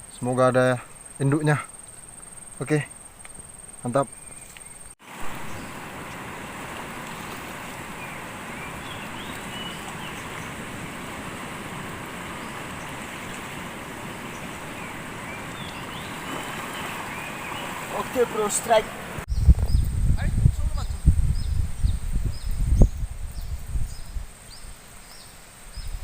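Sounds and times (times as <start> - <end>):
rushing water: 5.0 - 19.3
strong wind: 5.0 - 24.8.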